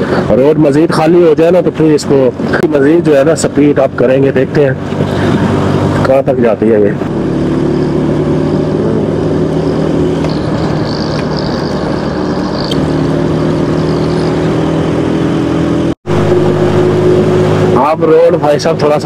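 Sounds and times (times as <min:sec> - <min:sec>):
motorcycle engine running: 0:06.9 - 0:19.0.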